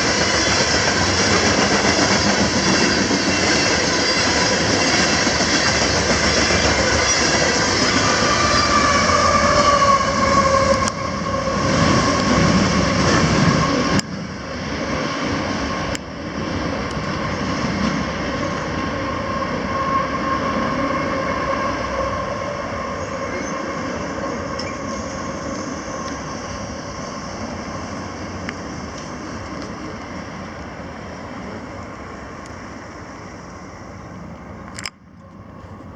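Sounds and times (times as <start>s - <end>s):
train cars rolling on rails: 0.0s - 35.9s
wheel squeal: 0.2s - 14.0s.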